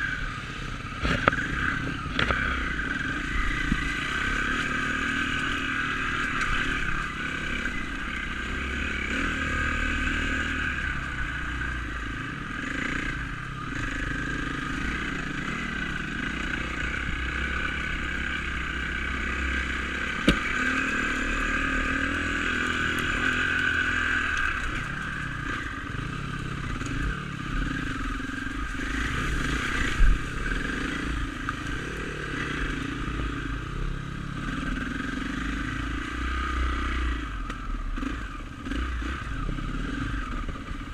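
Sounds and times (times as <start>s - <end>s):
dirt bike engine revving: 0.0s - 40.9s
bike knocking on rough ground: 20.2s - 20.5s.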